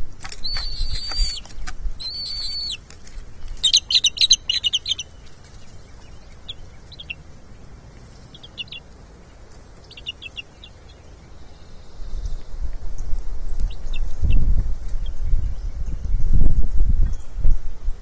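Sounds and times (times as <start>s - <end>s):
eagle chittering: 0.3s - 11.2s
eagle whistle: 0.4s - 1.4s, 2.0s - 2.8s
short bird chirps: 2.0s - 2.8s.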